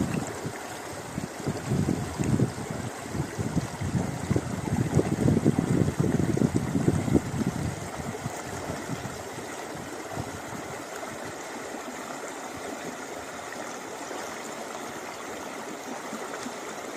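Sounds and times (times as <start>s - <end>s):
wind buffeting microphone: 0.0s - 11.4s
river water rushing: 0.0s - 16.9s.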